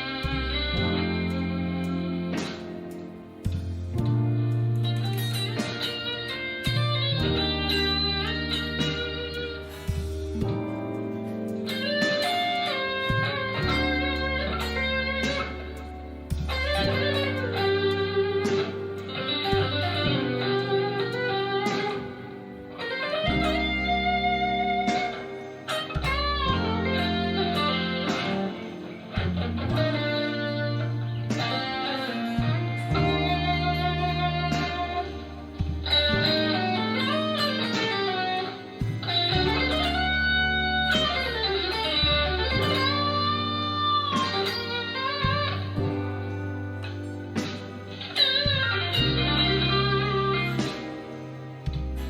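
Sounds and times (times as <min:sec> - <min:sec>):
low bass notes: 0:00.0 - 0:52.0
overdriven electric guitar: 0:00.0 - 0:52.0.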